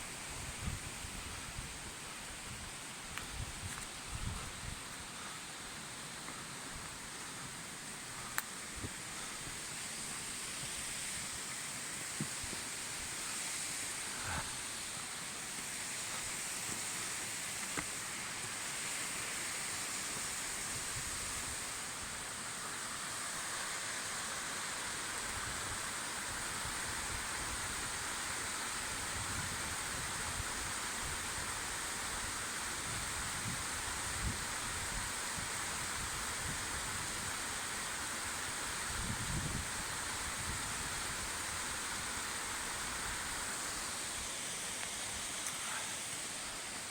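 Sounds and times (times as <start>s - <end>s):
mountain stream rushing: 0.0s - 46.9s
faint clicks: 8.3s - 8.5s.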